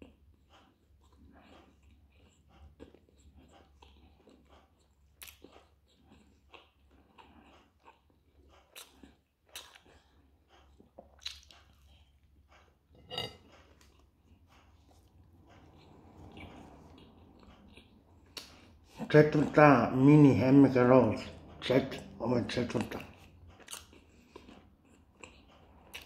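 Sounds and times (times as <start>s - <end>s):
person chewing: 0.0s - 26.0s.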